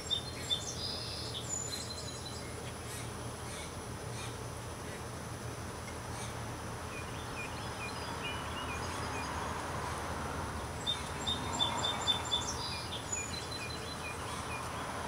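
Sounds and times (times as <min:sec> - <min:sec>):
outdoor background hiss: 0:00.0 - 0:15.0
songbirds chirping: 0:00.0 - 0:15.0.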